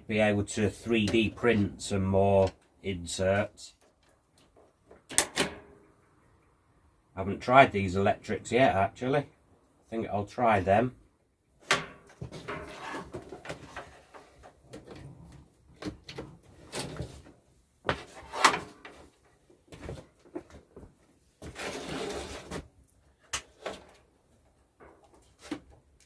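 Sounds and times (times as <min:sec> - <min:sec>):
rustling scrape: 0:12.3 - 0:14.4, 0:18.0 - 0:19.1, 0:21.4 - 0:22.7.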